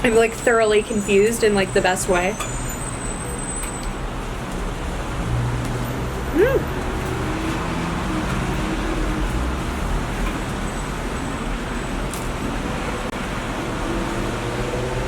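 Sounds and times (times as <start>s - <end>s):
rumbling background noise: 3.2s - 15.0s.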